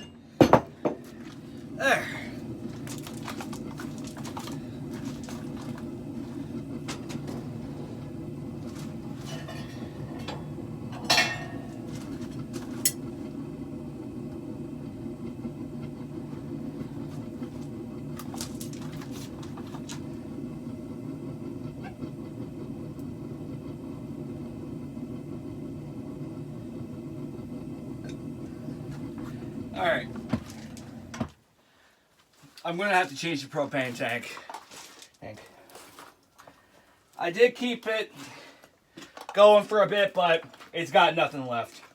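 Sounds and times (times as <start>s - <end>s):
forge burner rushing: 0.0s - 31.4s
sharp metallic clank: 11.0s - 11.7s.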